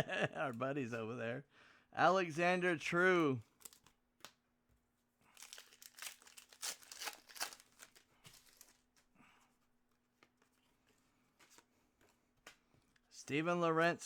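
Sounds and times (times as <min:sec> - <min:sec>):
wrappers rustling and tearing: 0:03.4 - 0:04.4, 0:05.2 - 0:09.1.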